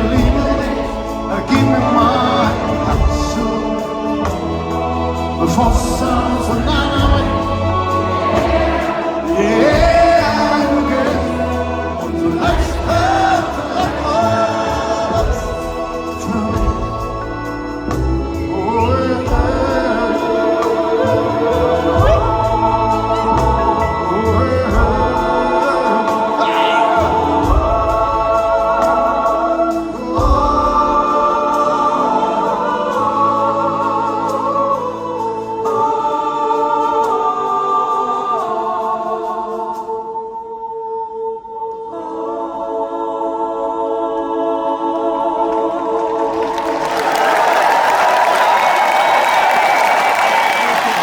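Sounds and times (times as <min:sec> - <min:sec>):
live band playing: 0:00.0 - 0:36.0, 0:46.3 - 0:51.0
crowd singing wordless melody: 0:00.0 - 0:51.0.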